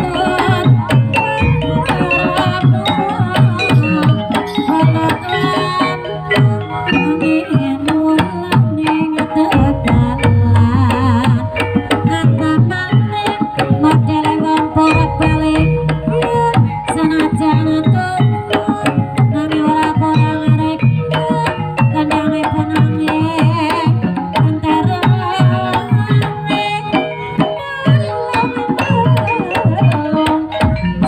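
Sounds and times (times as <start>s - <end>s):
struck bronze metallophones: 0.0s - 8.1s, 9.5s - 13.4s, 14.4s - 18.4s, 27.9s - 31.0s
hand drums busy rhythm: 0.0s - 31.0s
deep sustained tone: 9.6s - 12.1s.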